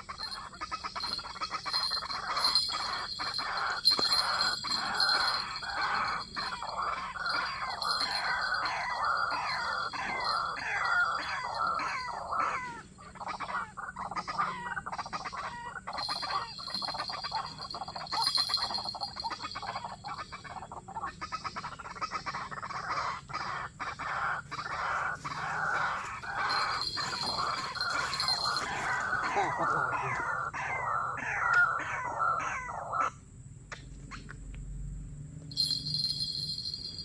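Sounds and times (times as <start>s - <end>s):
waterhen calling harsh notes: 0.0s - 13.6s, 15.4s - 21.0s, 23.8s - 32.5s.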